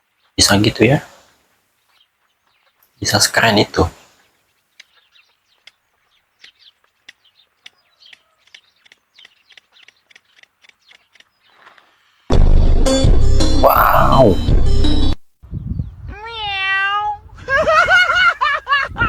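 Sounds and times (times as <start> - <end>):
loud music: 12.3 - 15.2.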